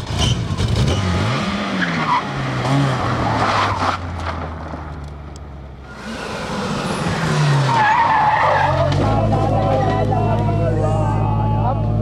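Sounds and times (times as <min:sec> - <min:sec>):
rally car engine at high revs: 0:00.0 - 0:04.7, 0:05.8 - 0:10.7.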